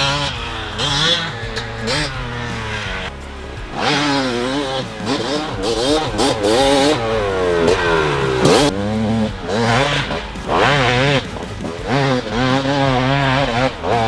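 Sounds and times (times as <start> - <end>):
two-stroke motorcycle engine revving: 0.0 - 14.0.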